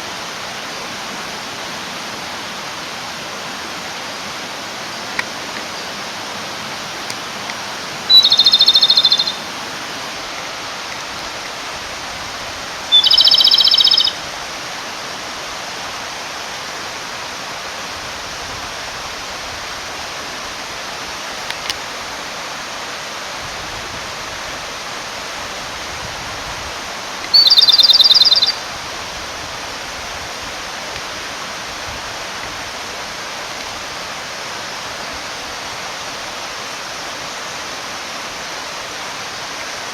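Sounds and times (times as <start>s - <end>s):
stream running: 0.0s - 39.9s
bird song with rattling trill: 8.1s - 9.4s, 12.9s - 14.2s, 27.2s - 28.6s.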